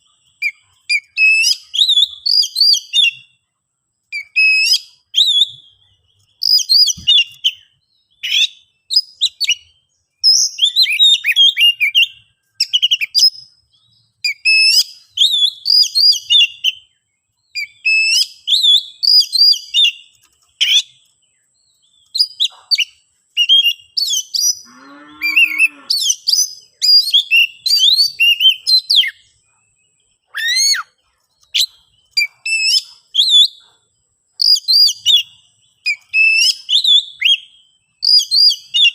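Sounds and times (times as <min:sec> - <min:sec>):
bird singing whistled phrases: 0:00.0 - 0:03.4, 0:04.1 - 0:13.5, 0:14.2 - 0:21.0, 0:21.9 - 0:29.4, 0:30.3 - 0:33.7, 0:34.4 - 0:38.9
low harsh bird call: 0:24.4 - 0:26.4.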